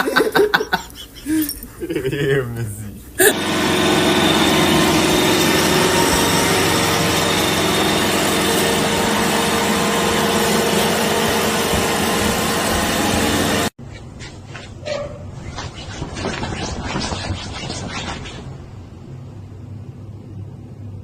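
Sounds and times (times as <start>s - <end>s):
small motor whirring: 3.3s - 13.7s.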